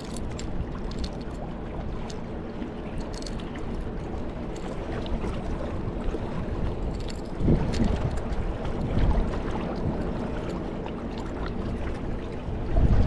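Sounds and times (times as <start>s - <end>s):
water lapping against hull: 0.0s - 13.0s
wind rumbling on microphone: 0.0s - 13.0s
small ticks and drips: 9.7s - 12.4s.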